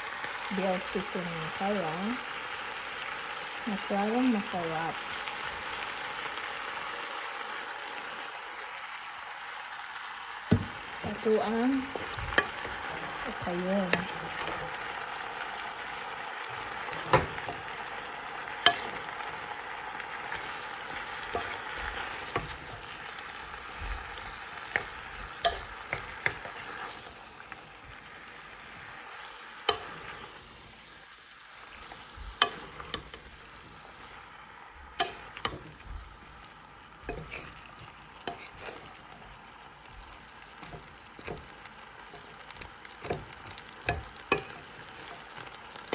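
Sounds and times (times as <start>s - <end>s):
vegetables sizzling in oil: 0.0s - 45.9s
utensil clacking against pan: 16.8s - 17.9s, 18.6s - 19.2s, 20.3s - 27.1s, 35.0s - 36.3s, 37.0s - 39.4s, 40.0s - 45.9s.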